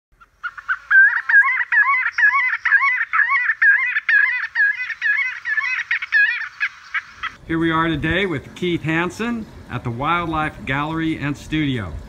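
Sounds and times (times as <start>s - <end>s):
bird calls: 0.1s - 7.4s.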